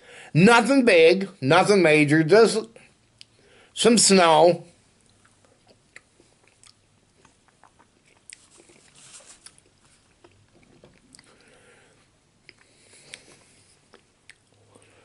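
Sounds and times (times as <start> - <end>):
man chewing food: 4.9 - 15.0.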